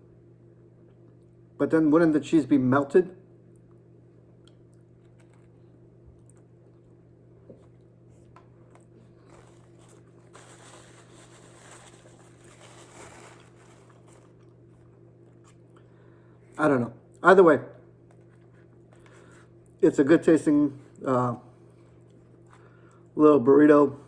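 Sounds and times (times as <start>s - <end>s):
low electrical hum: 0.0s - 24.0s
rustling: 9.0s - 14.8s.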